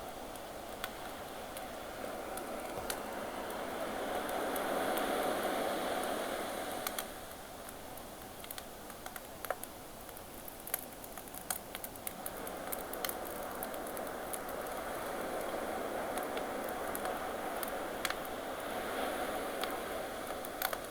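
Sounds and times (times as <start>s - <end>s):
campfire crackling and popping: 0.3s - 5.0s, 6.8s - 18.4s, 19.6s - 20.9s
ocean waves: 1.1s - 7.3s, 12.1s - 20.9s.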